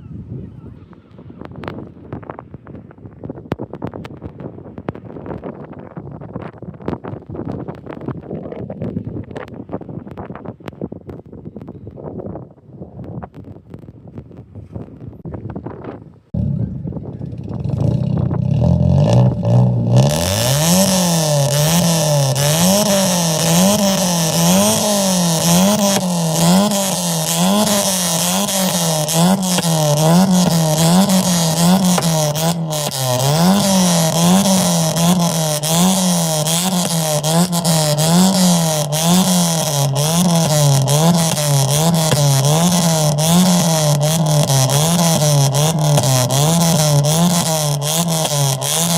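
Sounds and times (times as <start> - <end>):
car engine revving: 16.4 - 48.9.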